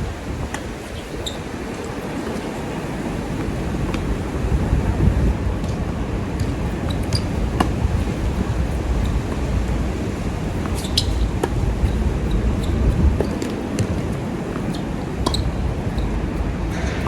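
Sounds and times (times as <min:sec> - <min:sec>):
wind buffeting microphone: 0:00.0 - 0:17.0
tennis balls struck and bouncing: 0:05.6 - 0:17.0.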